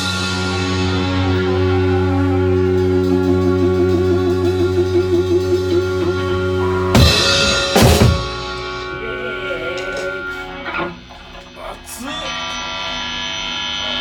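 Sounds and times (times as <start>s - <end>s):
cymbals ringing: 4.4s - 10.7s
full band crash hits: 6.9s - 9.0s.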